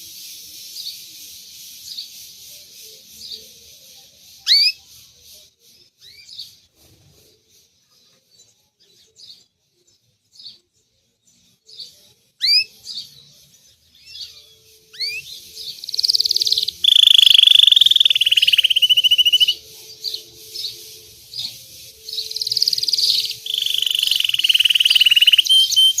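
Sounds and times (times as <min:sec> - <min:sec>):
canary singing with trills: 0:00.0 - 0:26.0.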